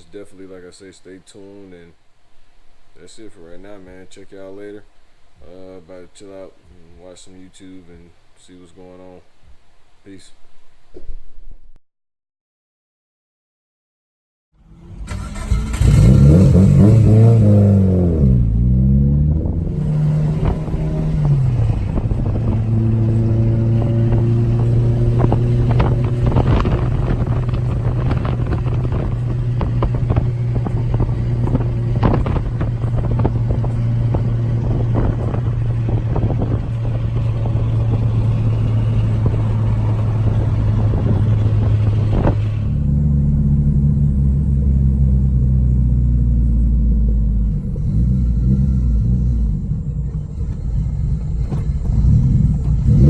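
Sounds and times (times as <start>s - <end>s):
car engine revving and idling: 14.6s - 53.0s.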